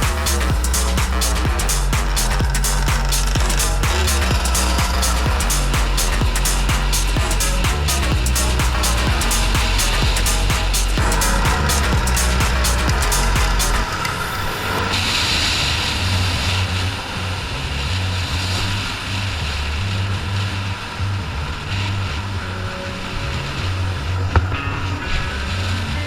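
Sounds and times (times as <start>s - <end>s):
music with stepping bass line: 0.0s - 13.9s
off-road vehicle engines: 0.0s - 26.0s.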